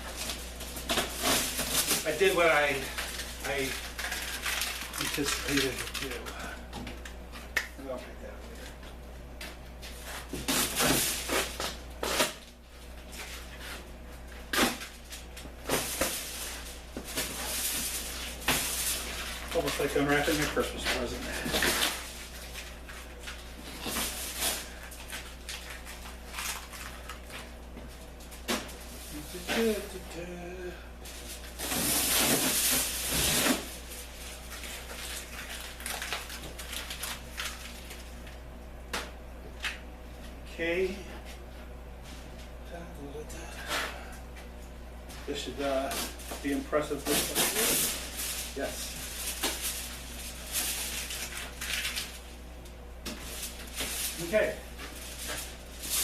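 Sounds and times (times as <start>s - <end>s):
foil and cardboard crumpling: 0.0s - 6.7s, 9.9s - 12.5s, 14.4s - 30.0s, 31.0s - 38.3s, 45.3s - 52.4s, 53.1s - 56.0s
steady low hum: 0.0s - 56.0s
cardboard rustling and scraping: 31.2s - 38.0s.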